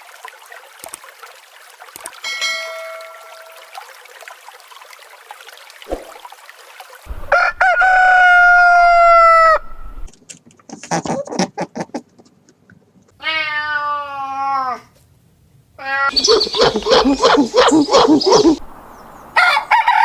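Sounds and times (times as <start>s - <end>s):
rooster crowing: 7.1s - 10.0s, 19.4s - 20.0s
rooster clucking calls: 16.1s - 18.6s.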